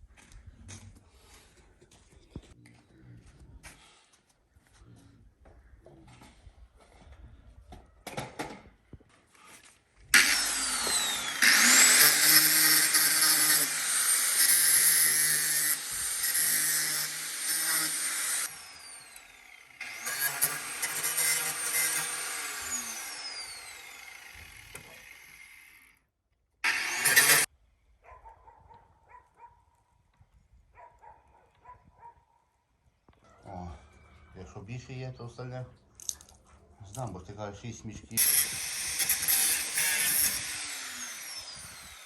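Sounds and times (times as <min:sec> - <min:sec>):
power tool motor spinning: 0:10.1 - 0:26.0, 0:26.6 - 0:27.5, 0:38.2 - 0:42.0.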